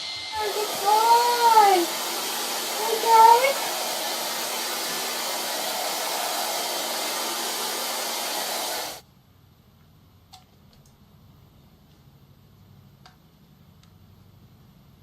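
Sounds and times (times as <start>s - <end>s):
hair dryer blowing: 0.0s - 9.0s.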